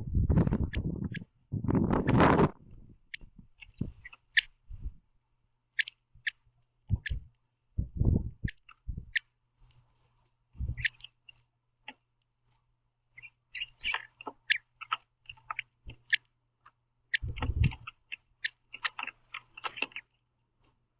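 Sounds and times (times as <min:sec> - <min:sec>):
soft low thumps on feeder: 0:06.2 - 0:09.2, 0:10.6 - 0:11.0, 0:17.2 - 0:18.0.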